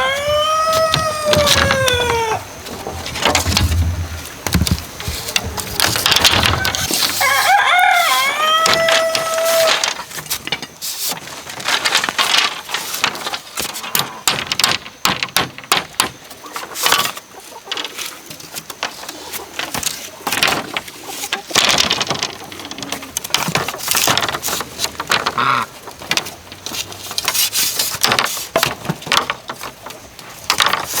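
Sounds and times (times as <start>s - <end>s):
rooster crowing: 0.0s - 2.6s, 6.8s - 9.9s
scraping and rustling: 0.0s - 31.0s.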